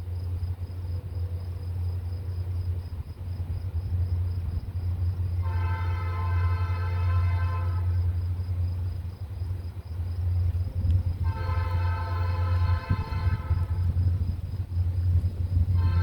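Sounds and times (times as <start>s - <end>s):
locomotive low rumble: 0.0s - 16.0s
locomotive air horn blasts: 5.4s - 8.2s, 11.2s - 14.0s, 15.7s - 16.0s.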